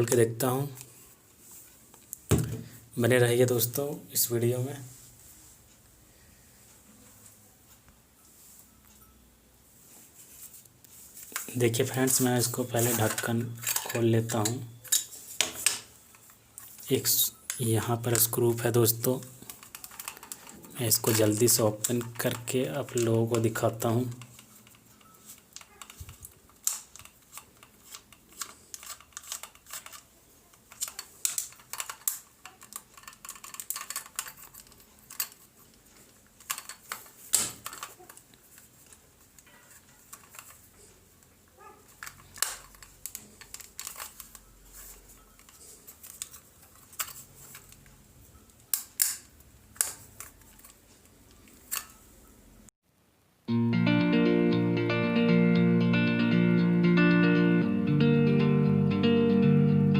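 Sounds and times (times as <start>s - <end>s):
plastic parts clicking and scraping: 10.8s - 52.1s.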